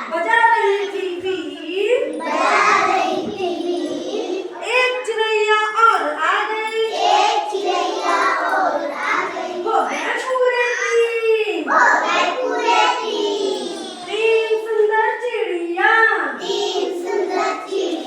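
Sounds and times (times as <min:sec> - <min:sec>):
child singing: 0:02.0 - 0:04.7, 0:06.7 - 0:10.0, 0:11.7 - 0:14.3, 0:16.4 - 0:18.0.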